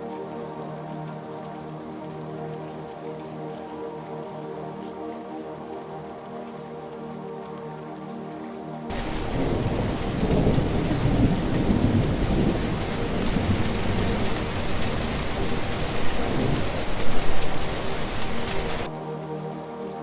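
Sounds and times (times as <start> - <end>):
heavy rain: 0.0 - 20.0
thunder rumbling: 8.9 - 18.9.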